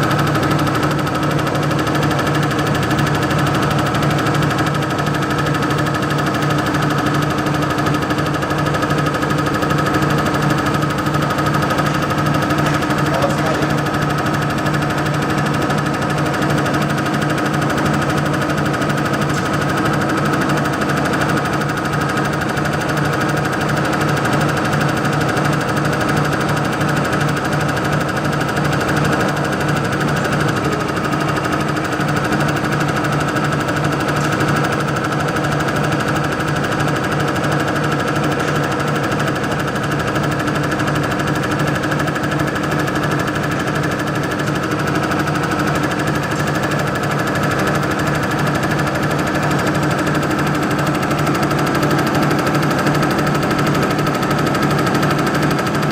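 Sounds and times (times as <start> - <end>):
fuel injector knocking: 0.0 - 55.9.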